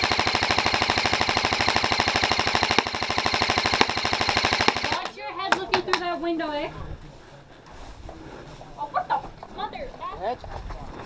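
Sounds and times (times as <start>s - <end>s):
airsoft gun full-auto burst: 0.0s - 5.1s.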